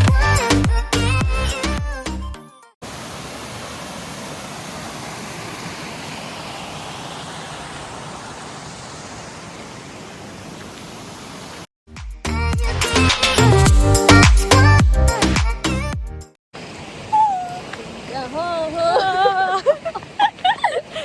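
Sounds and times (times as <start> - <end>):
waterfall rushing water: 2.8 - 11.7, 16.6 - 21.0.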